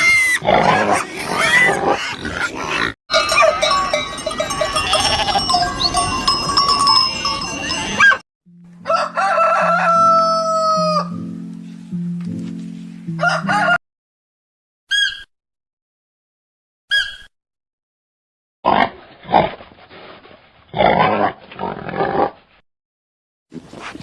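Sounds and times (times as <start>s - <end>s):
animals bleating: 4.6s - 5.7s
rooster crowing: 8.8s - 11.2s, 13.2s - 13.8s.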